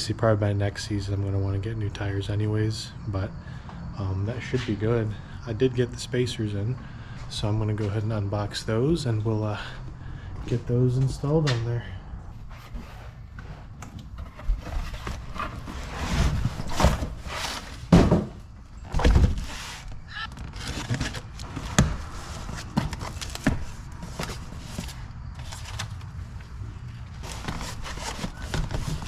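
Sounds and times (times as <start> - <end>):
cardboard and packaging rustling: 12.4 - 29.0.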